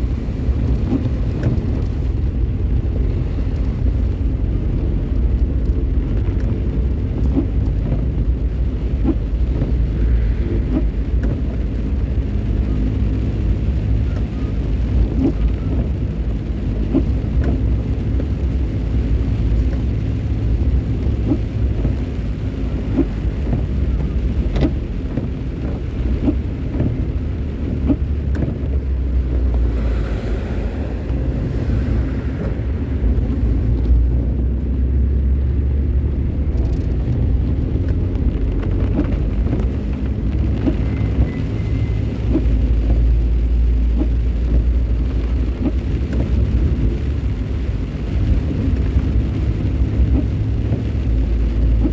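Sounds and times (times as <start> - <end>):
car driving on road: 0.0 - 51.9
light ticks: 0.7 - 2.2, 3.0 - 12.2, 43.9 - 51.9.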